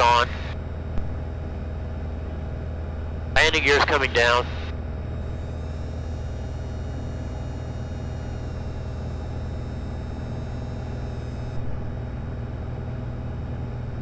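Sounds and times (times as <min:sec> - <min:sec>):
plane engine and propeller drone: 0:00.0 - 0:14.0
landing gear motor whine: 0:04.8 - 0:11.7.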